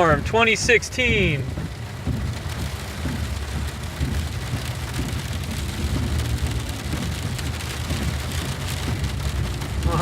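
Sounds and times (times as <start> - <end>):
car driving rumble: 0.0 - 10.0
freezing rain pattering: 0.0 - 10.0.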